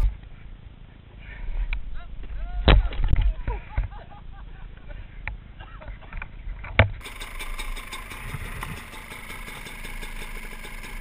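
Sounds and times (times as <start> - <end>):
dirt bike engine idling: 7.0 - 11.0.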